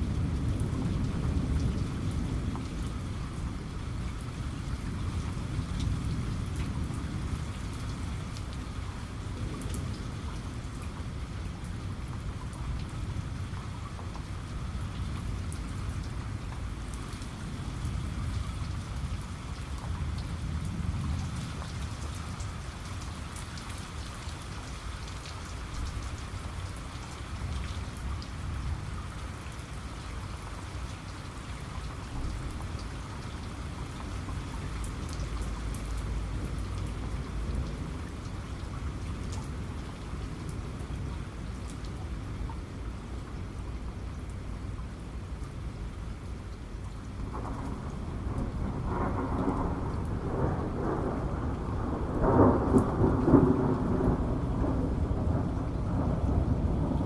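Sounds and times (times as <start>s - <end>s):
rain falling on a surface: 0.0s - 57.0s
low thunder rumble: 47.2s - 57.0s.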